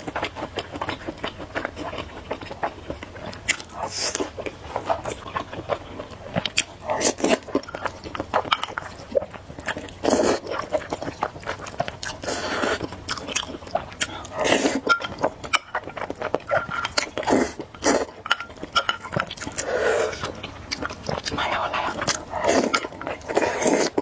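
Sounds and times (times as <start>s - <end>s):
wet chewing and mouth smacking: 0.0s - 24.0s
noodle slurps: 19.5s - 20.4s, 21.3s - 24.0s.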